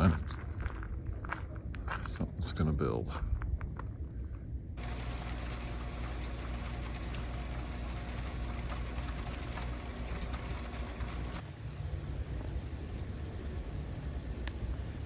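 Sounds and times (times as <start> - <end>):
engine running with low hum: 4.7 - 15.0
faint irregular ticking: 4.8 - 11.4.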